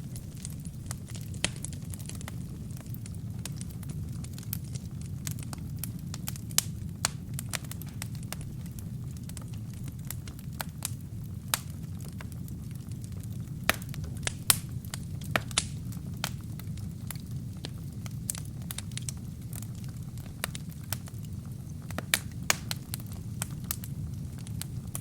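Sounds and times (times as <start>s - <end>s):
low rumble of flames: 0.0s - 25.0s
wood fire crackling and popping: 0.0s - 25.0s.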